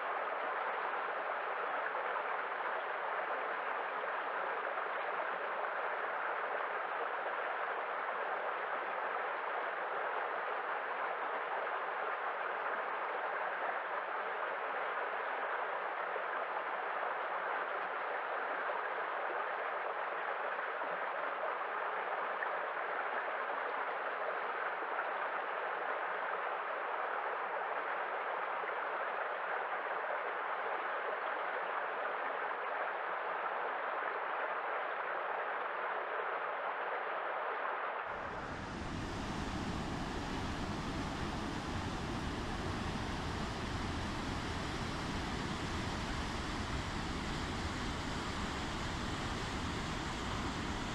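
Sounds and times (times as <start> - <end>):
water rushing: 38.2 - 50.9.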